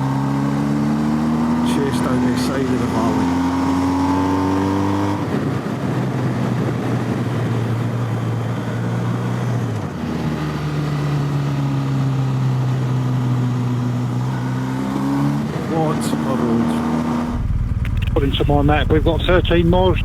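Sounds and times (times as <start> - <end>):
motorcycle engine running: 16.3 - 20.0
riding wind noise: 17.0 - 20.0.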